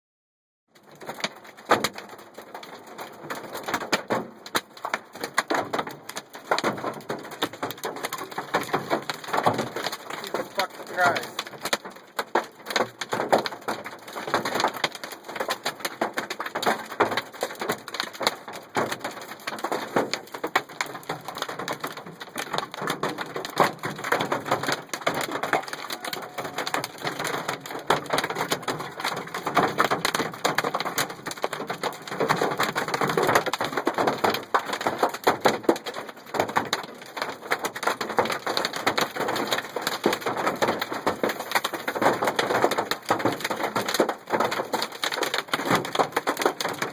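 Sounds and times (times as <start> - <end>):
hailstones pelting a truck: 0.8 - 46.9.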